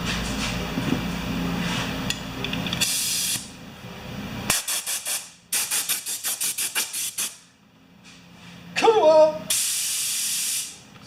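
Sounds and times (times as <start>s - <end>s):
air compressor humming: 0.0s - 8.8s, 9.5s - 11.0s
air hiss: 2.8s - 3.5s, 9.5s - 10.8s
compressed air bursts: 2.8s - 3.5s, 4.5s - 7.4s, 9.5s - 10.8s.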